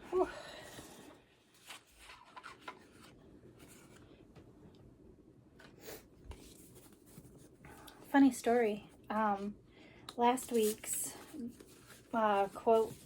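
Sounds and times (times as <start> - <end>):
paper rustling and rubbing: 6.3 - 7.6, 10.4 - 13.0.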